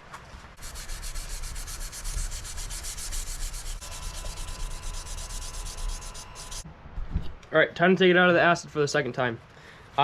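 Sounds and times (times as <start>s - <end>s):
sandpaper rubbing on metal blade: 0.6s - 6.6s.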